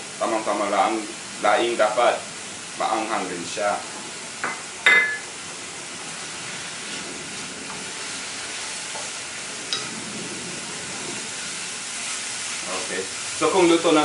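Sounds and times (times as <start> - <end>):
food sizzling in a frying pan: 0.0 - 14.0
ceramic bowl clinking: 4.4 - 5.3.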